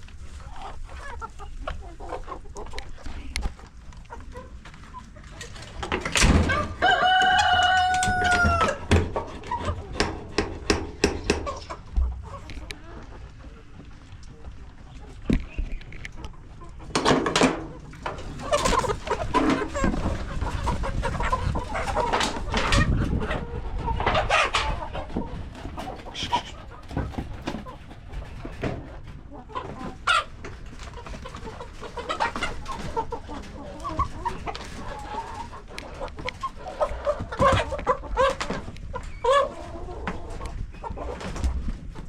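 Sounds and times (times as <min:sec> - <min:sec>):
chickens clucking: 0:00.0 - 0:42.0.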